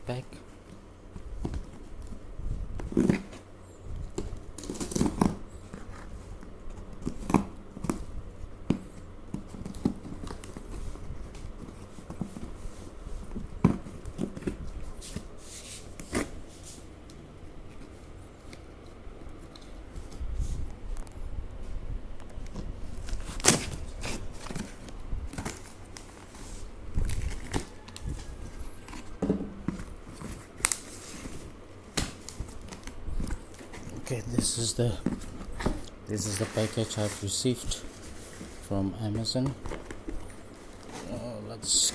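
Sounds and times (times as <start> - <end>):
package being handled and opened: 4.2 - 20.2, 22.3 - 41.9
packaging rustling: 8.8 - 20.2, 22.4 - 41.9.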